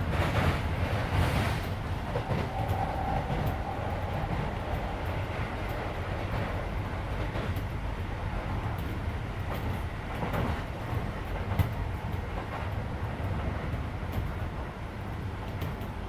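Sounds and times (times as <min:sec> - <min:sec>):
rail joint clicks: 0:00.0 - 0:16.0
train wheels rumbling on rail: 0:00.0 - 0:16.0.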